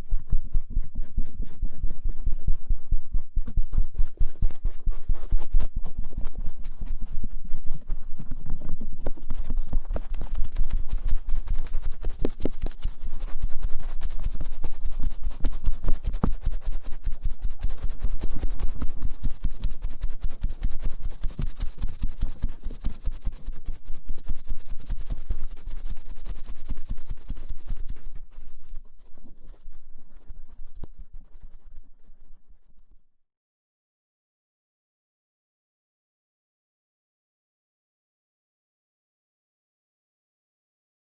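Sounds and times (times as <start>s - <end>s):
cotton swabs rubbing microphone: 0.0s - 32.8s.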